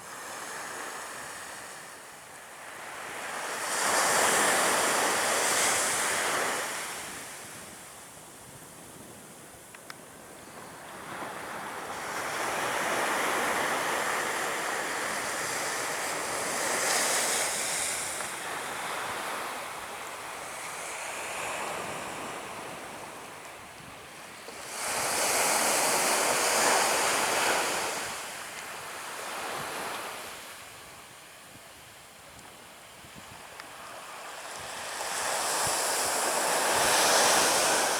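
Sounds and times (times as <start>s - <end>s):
surf breaking on a beach: 33.2s - 37.9s.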